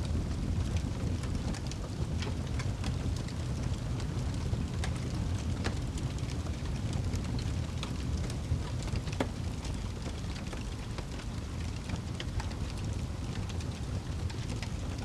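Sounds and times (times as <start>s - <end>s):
low fire rumble: 0.0s - 15.0s
wood fire crackling: 0.1s - 15.0s.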